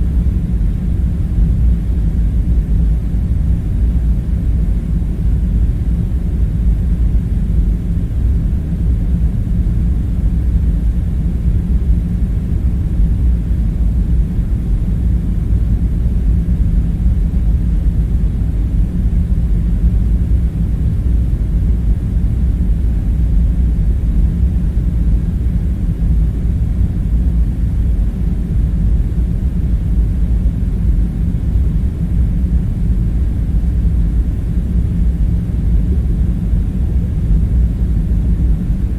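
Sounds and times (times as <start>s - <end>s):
low rumbling background hum: 0.0s - 38.9s.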